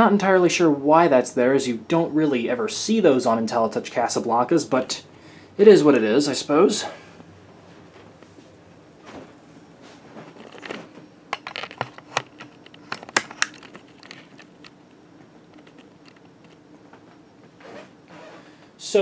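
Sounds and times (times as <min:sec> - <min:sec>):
faint background hum: 0:00.0 - 0:19.0
sharp clicks and rustles: 0:10.2 - 0:17.1.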